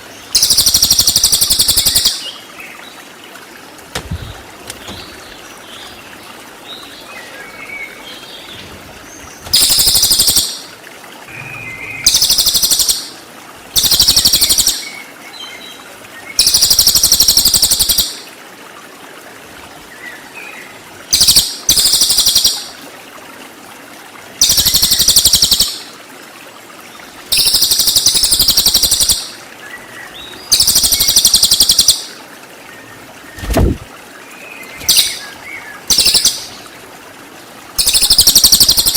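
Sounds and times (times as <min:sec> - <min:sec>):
faint background bird chirps: 0:04.2 - 0:16.8, 0:34.1 - 0:36.8
songbird high rapid trills: 0:09.1 - 0:10.7, 0:11.3 - 0:15.0, 0:34.7 - 0:36.6, 0:37.8 - 0:38.9.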